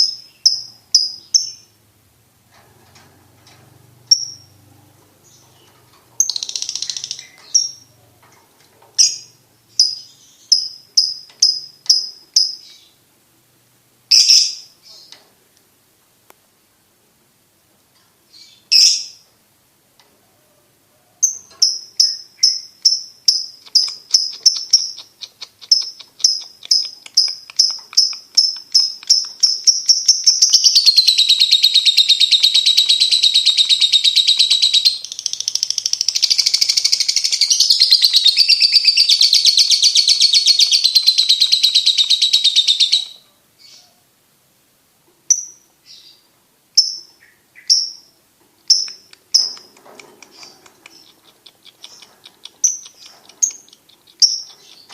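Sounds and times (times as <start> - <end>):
lovebird chirping and trilling: 0.0 - 1.8, 4.1 - 4.6, 5.2 - 8.0, 9.0 - 13.0, 14.1 - 15.2, 18.3 - 19.2, 21.2 - 44.0, 45.3 - 46.2, 46.8 - 54.9.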